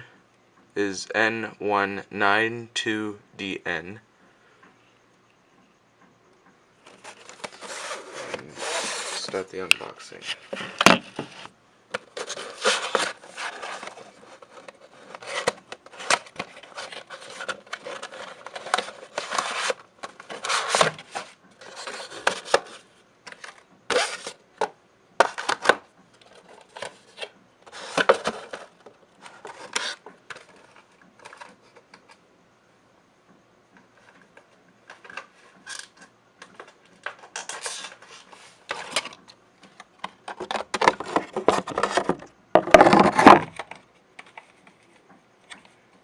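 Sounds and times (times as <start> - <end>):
cardboard packaging rustling: 6.9 - 24.4, 25.2 - 31.8, 40.3 - 43.6.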